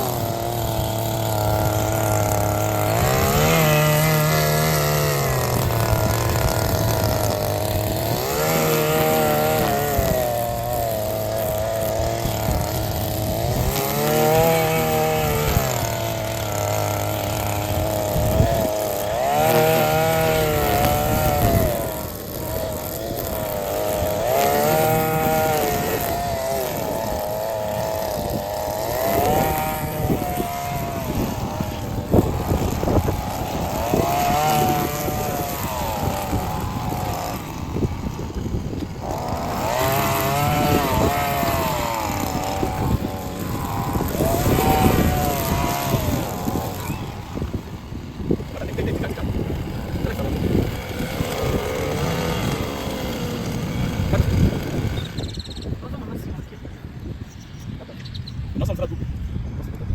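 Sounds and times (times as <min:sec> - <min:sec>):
lawn mower engine revving: 0:00.0 - 0:56.7.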